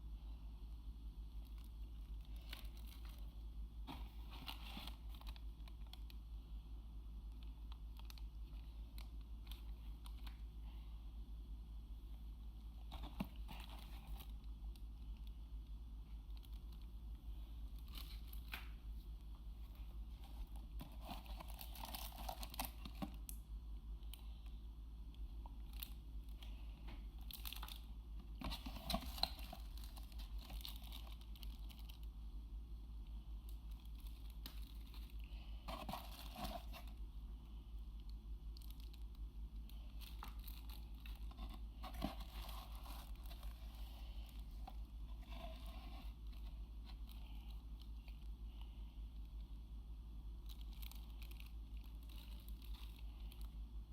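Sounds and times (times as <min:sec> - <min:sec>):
steady low hum: 0:00.0 - 0:53.9
packaging crinkling and tearing: 0:20.2 - 0:23.4, 0:27.2 - 0:32.1, 0:33.7 - 0:37.0, 0:38.6 - 0:48.2, 0:50.4 - 0:53.5.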